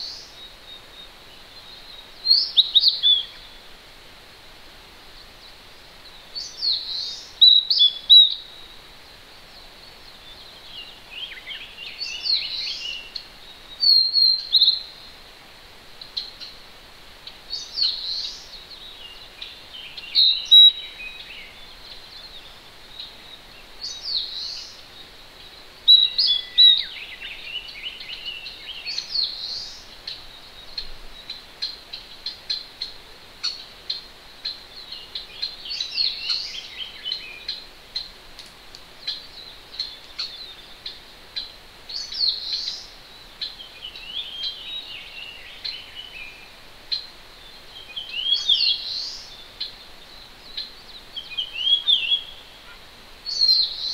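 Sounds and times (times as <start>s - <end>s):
songbirds singing: 0.0s - 53.9s.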